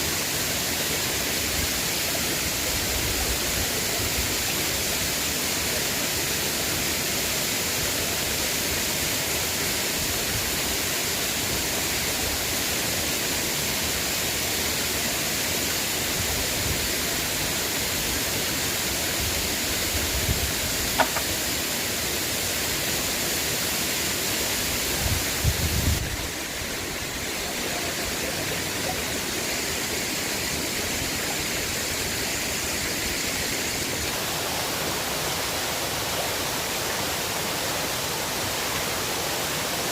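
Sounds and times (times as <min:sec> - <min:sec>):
river water flowing: 0:00.0 - 0:39.9
low knocks: 0:21.0 - 0:21.3
sharp click: 0:21.0 - 0:21.3.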